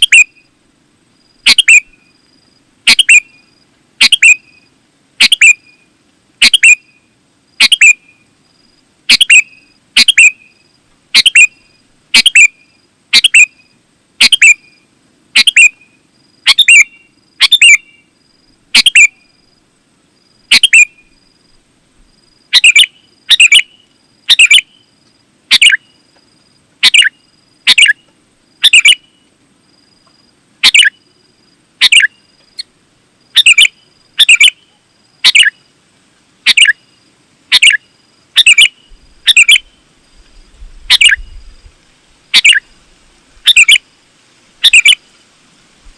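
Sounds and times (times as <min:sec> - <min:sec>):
bird calling sharp notes: 0:00.0 - 0:00.4, 0:01.4 - 0:02.0, 0:02.9 - 0:03.4, 0:04.0 - 0:04.6, 0:05.2 - 0:05.8, 0:06.4 - 0:06.9, 0:07.6 - 0:08.1, 0:09.1 - 0:10.4, 0:11.1 - 0:13.6, 0:14.2 - 0:14.6, 0:15.4 - 0:15.8, 0:16.4 - 0:18.0, 0:18.7 - 0:19.2, 0:20.5 - 0:21.1, 0:22.5 - 0:24.7, 0:25.5 - 0:25.9, 0:26.8 - 0:28.0, 0:28.6 - 0:29.1, 0:30.6 - 0:31.0, 0:31.8 - 0:32.7, 0:33.4 - 0:34.6, 0:35.2 - 0:35.5, 0:36.5 - 0:36.8, 0:37.5 - 0:37.8, 0:38.4 - 0:39.8, 0:40.9 - 0:41.4, 0:42.3 - 0:42.7, 0:43.4 - 0:43.8, 0:44.6 - 0:45.0.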